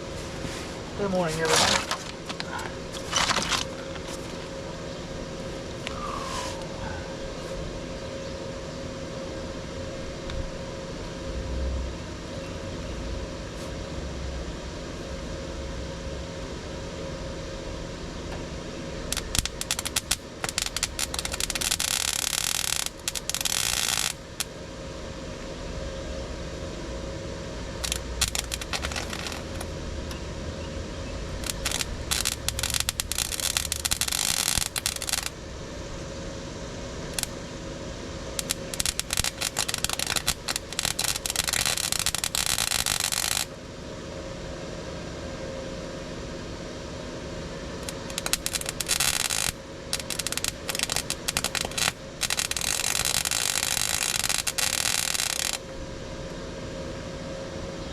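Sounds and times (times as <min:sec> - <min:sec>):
steady hum with faint whine: 0:00.0 - 0:57.9
scraping and rattling: 0:01.2 - 0:04.5, 0:27.8 - 0:29.6, 0:31.4 - 0:35.3, 0:38.4 - 0:43.4.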